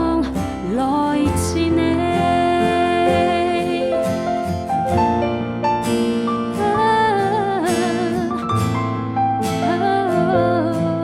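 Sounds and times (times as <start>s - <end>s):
keyboard chords: 0.0s - 11.0s.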